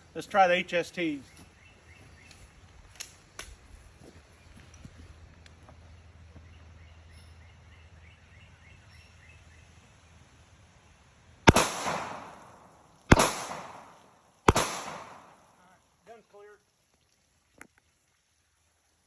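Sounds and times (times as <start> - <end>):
pistol shots echoing: 11.5 - 15.5.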